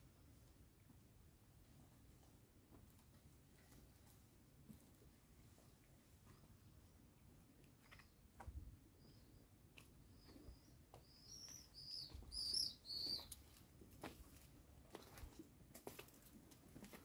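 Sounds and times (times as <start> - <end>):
small bird chirping: 10.0 - 13.4.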